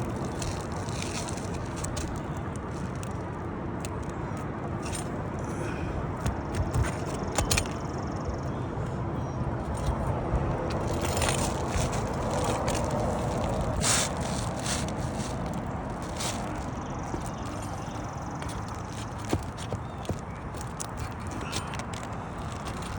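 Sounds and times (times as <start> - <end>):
roof shingles scraped: 0.0 - 3.1, 9.8 - 22.9
steady low rumble: 0.0 - 22.9
tool clicks and knocks: 6.2 - 8.0.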